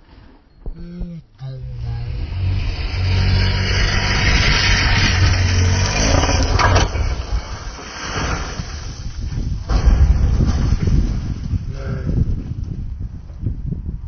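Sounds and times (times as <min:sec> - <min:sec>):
sharp burst of noise: 0:01.5 - 0:08.6
rally car engine running hard: 0:01.7 - 0:07.5
tyre and gravel noise: 0:01.8 - 0:12.8.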